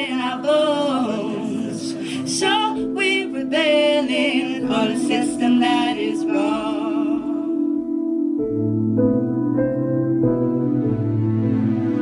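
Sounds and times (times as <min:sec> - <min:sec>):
woman singing wordless melody: 0:00.0 - 0:07.9.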